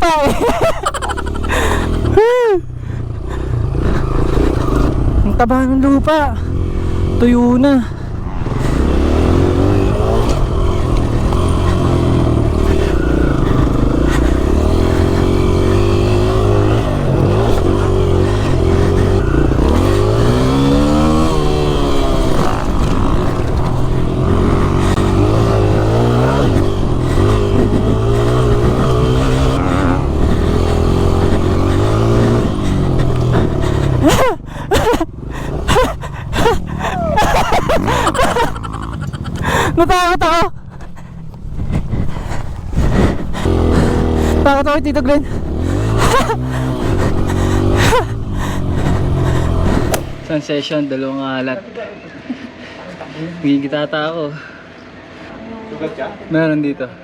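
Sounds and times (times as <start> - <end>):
dirt bike engine revving: 0.0 - 50.4
engine bursts and knocks: 8.5 - 39.9, 40.6 - 50.3.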